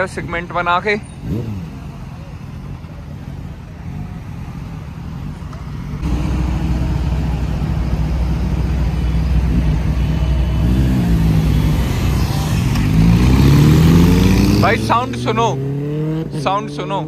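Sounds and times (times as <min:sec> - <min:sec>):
motorcycle engines idling and revving: 0:00.0 - 0:17.0.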